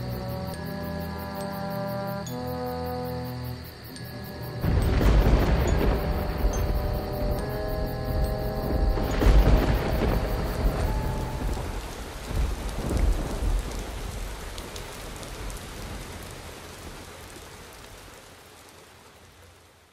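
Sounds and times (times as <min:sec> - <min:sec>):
steady rain: 0:00.0 - 0:19.9
thunder rolling: 0:04.4 - 0:14.6.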